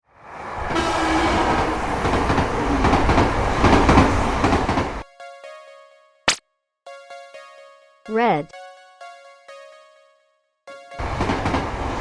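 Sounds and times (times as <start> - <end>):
train rumbling and clattering: 0.2 - 5.0, 11.0 - 12.0.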